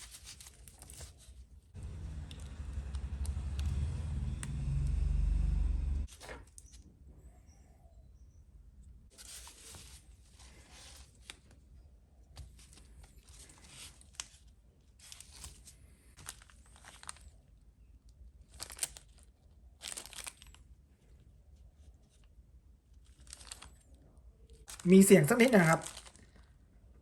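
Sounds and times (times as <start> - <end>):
plastic bag rustling and crinkling: 0.0 - 1.7, 9.1 - 11.8, 12.4 - 17.6, 18.4 - 26.6.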